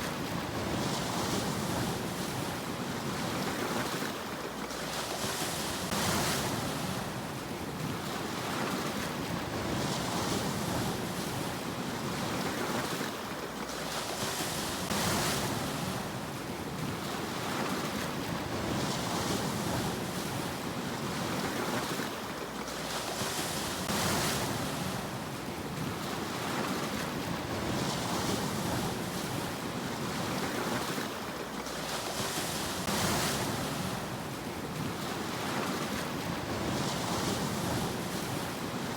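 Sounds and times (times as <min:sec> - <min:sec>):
sea waves breaking: 0:00.0 - 0:38.9.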